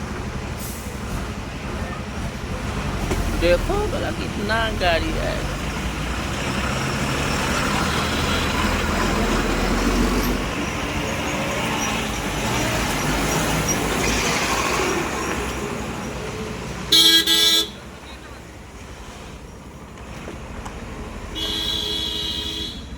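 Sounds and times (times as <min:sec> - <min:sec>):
trucks passing: 0:00.0 - 0:22.9
vehicle horn blaring: 0:16.9 - 0:17.8, 0:21.4 - 0:22.9.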